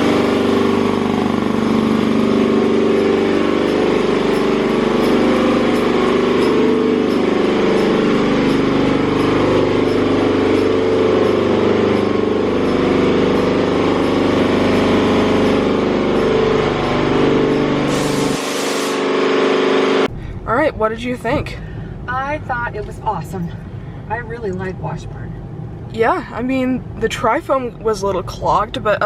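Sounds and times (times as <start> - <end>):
car wash dryer blowers: 0.0 - 20.1.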